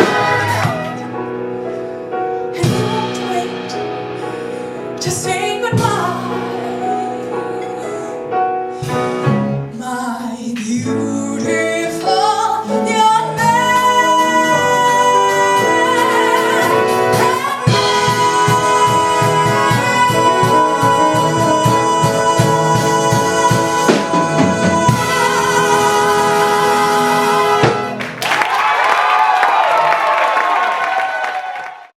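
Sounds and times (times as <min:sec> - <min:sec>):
woman singing: 0:00.0 - 0:01.1, 0:02.6 - 0:08.3, 0:09.7 - 0:28.0
band accompaniment: 0:00.0 - 0:09.8, 0:10.6 - 0:31.5.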